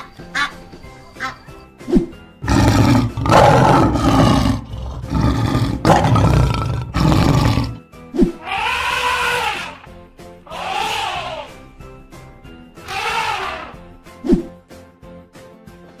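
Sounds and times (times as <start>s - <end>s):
goose honk: 0.0s - 0.6s
light children's music: 0.0s - 16.0s
lion roars: 2.4s - 7.8s.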